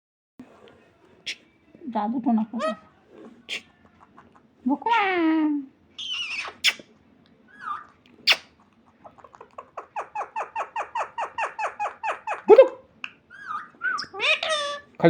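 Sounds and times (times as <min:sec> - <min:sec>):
parrot calling: 0:02.6 - 0:02.9, 0:03.5 - 0:05.2, 0:06.0 - 0:06.9, 0:07.5 - 0:15.0.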